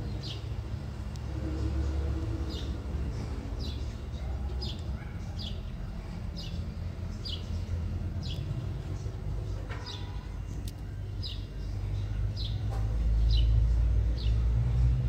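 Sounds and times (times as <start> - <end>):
small bird chirping: 2.4 - 13.6.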